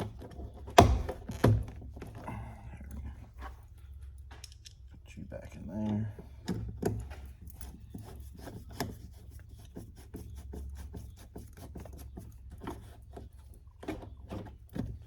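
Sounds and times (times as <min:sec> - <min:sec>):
scraping and rubbing on plastic panel: 0:06.5 - 0:15.0.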